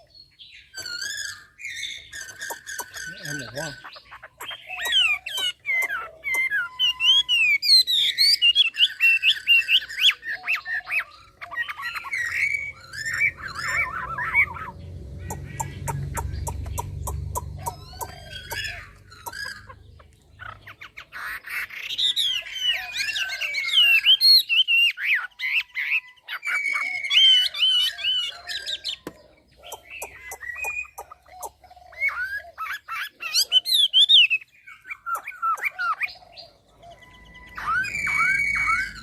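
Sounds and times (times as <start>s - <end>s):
bird singing whistled phrases: 0.0s - 14.7s, 29.7s - 39.0s.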